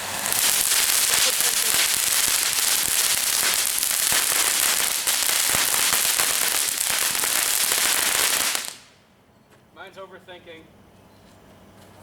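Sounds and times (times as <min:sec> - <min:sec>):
firework fountain hissing and crackling: 0:00.0 - 0:09.0.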